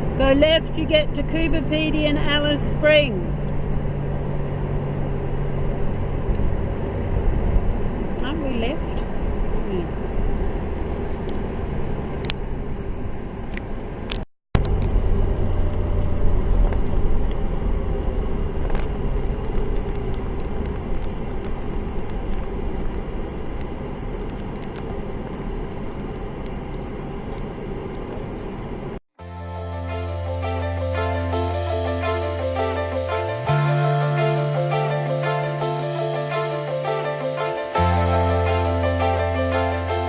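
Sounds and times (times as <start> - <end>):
road and engine rumble inside car: 0.0 - 29.0.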